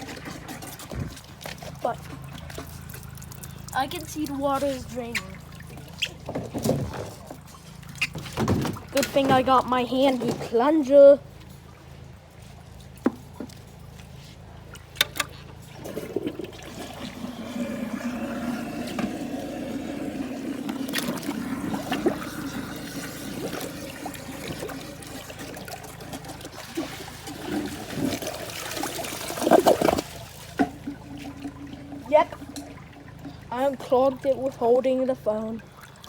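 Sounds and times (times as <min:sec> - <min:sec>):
water gurgling down toilet bowl: 0:15.8 - 0:34.7.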